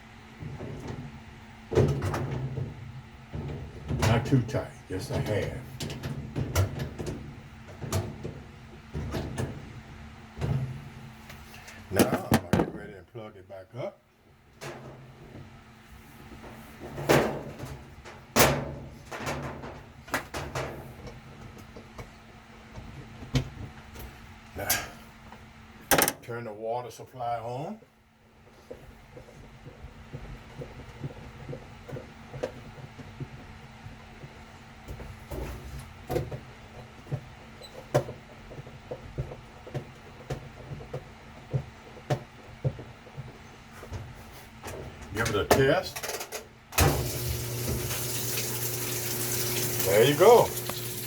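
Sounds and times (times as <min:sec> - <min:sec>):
knocks and clunks of handling: 0:11.9 - 0:12.9.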